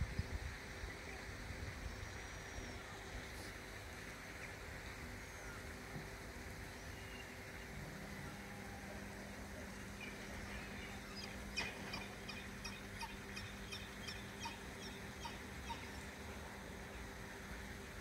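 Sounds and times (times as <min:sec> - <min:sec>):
faint steady hum: 0:00.0 - 0:18.0
water birds high calls: 0:04.2 - 0:17.1.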